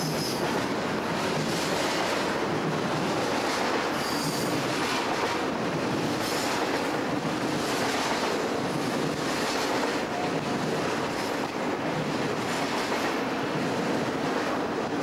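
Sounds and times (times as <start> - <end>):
freight train rumbling past: 0.0 - 15.0
high wheel squeals: 4.0 - 4.5.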